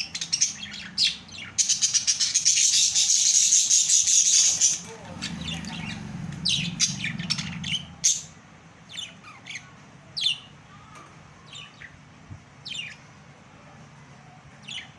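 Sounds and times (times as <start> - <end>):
budgerigars chirping and squawking: 0.0 - 10.6, 12.6 - 13.1.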